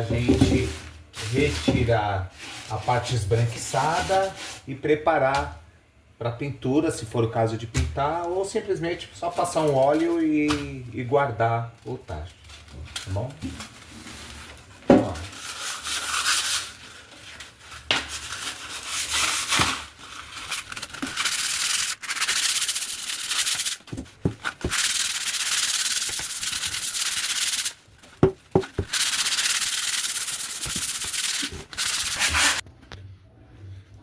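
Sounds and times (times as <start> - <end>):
sandpaper rubbing on steel: 21.0 - 27.8, 28.5 - 32.6.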